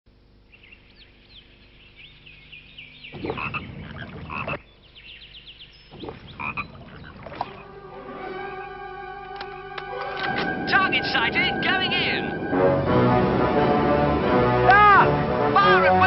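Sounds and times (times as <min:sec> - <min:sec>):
frogs croaking: 0:00.1 - 0:08.0
high chirping calls: 0:00.5 - 0:07.6.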